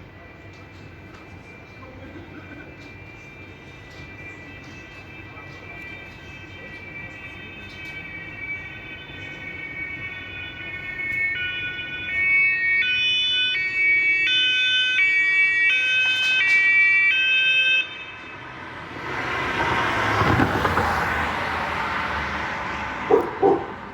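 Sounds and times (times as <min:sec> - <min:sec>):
police car two-tone siren: 0:00.0 - 0:23.9
passing vehicle road noise: 0:17.8 - 0:23.9.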